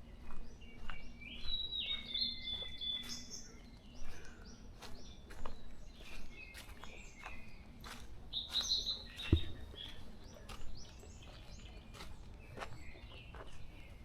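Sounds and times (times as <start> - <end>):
small birds chirping and singing: 0.0 - 14.0.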